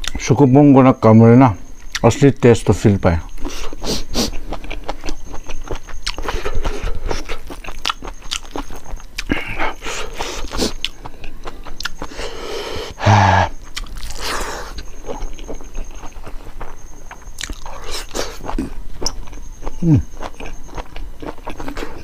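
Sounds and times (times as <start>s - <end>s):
chewing and lip smacks: 3.3s - 12.3s, 13.6s - 22.0s
short loud vocal sound: 13.0s - 13.6s.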